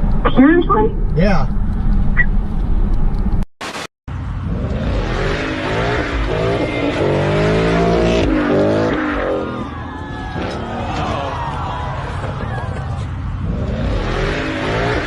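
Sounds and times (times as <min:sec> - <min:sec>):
car driving rumble: 0:00.0 - 0:03.4, 0:04.1 - 0:15.0
wavering pitched whine: 0:04.6 - 0:11.3.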